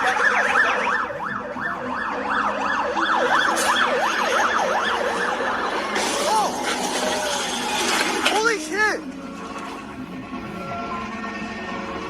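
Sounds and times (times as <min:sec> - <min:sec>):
emergency siren yelping: 0:00.0 - 0:08.2.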